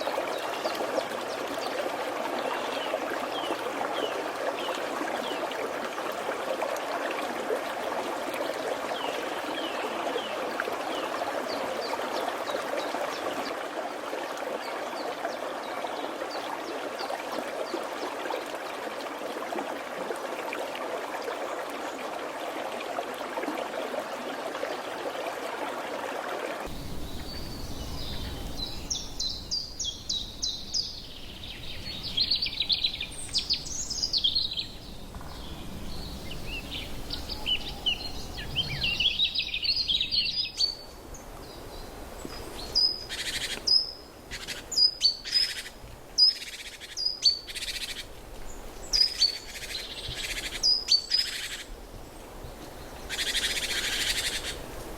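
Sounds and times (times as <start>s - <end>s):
running water: 0.0s - 54.9s
birds chirping: 26.7s - 40.8s.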